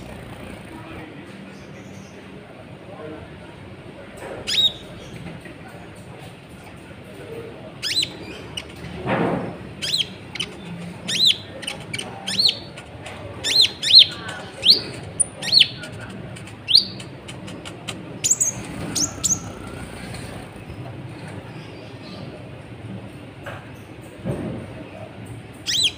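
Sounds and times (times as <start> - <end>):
bird chirping high: 4.5 - 5.0, 7.8 - 8.8, 9.8 - 12.8, 13.4 - 15.8, 16.6 - 20.0, 25.6 - 25.9.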